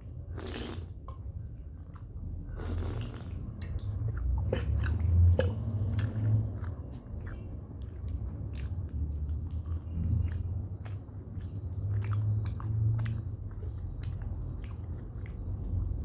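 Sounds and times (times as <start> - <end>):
low steady rumble: 0.0 - 16.0
person chewing food: 0.0 - 16.0.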